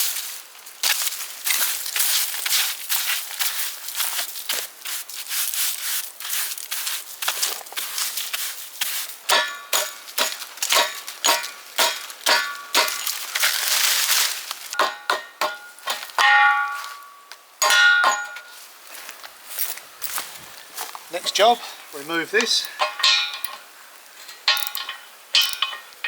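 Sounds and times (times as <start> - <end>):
long ringing metal clangs: 9.3 - 13.1, 14.8 - 18.5, 22.4 - 23.6, 24.3 - 26.0
metal clanks: 9.3 - 13.6, 14.7 - 18.5, 22.4 - 23.7, 24.3 - 26.0.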